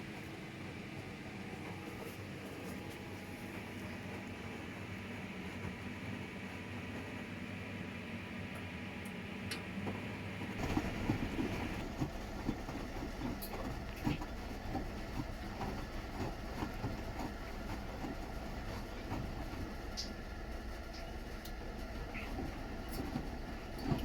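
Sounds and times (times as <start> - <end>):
washing machine drum turning: 10.5 - 24.0.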